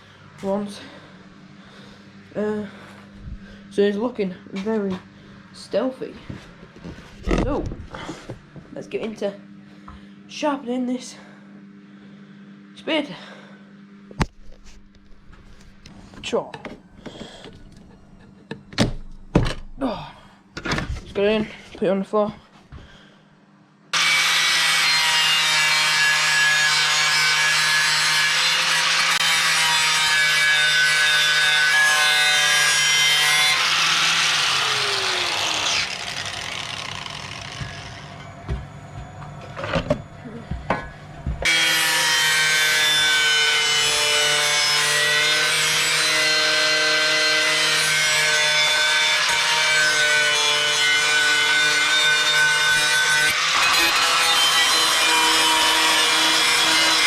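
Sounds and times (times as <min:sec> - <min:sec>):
electric grinder grinding steel: 0:24.0 - 0:38.3, 0:41.4 - 0:57.0.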